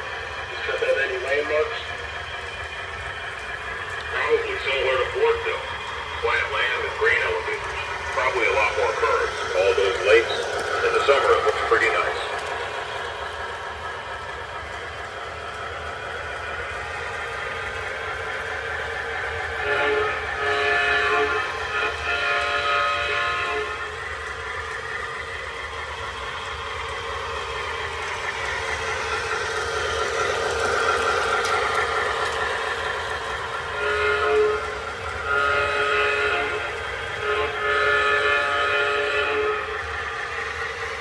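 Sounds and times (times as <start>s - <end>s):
toy train running: 0.0s - 41.0s
electronic train horn blasts: 19.6s - 23.8s, 33.7s - 39.8s.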